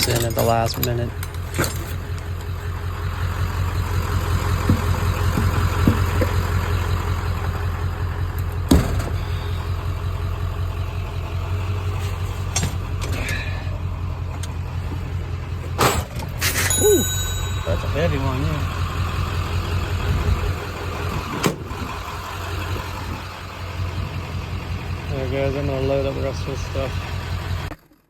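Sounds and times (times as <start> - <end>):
vehicle engine idling: 0.0 - 27.8
knocks: 4.6 - 6.4.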